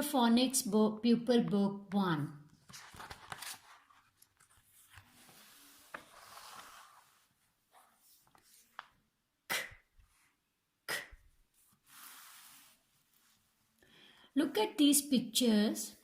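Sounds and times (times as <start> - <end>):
book pages rustling and turning: 2.5 - 9.2, 11.5 - 13.7.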